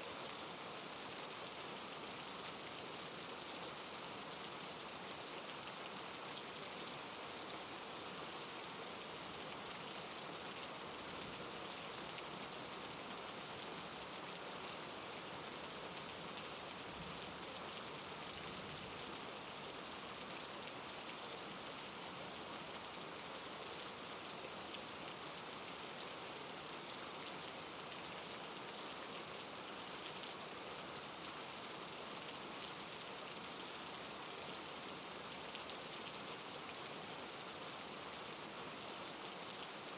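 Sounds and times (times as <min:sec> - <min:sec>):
soft rain falling: 0:00.0 - 0:39.9.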